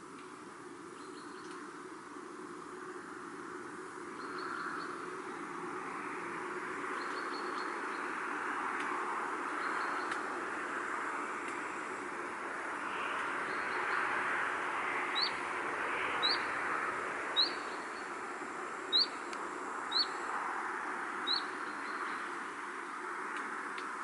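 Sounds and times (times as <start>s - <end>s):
bird chirping: 15.1s - 15.4s, 16.2s - 16.6s, 17.4s - 18.2s, 18.9s - 19.2s, 19.9s - 20.2s, 21.2s - 22.4s.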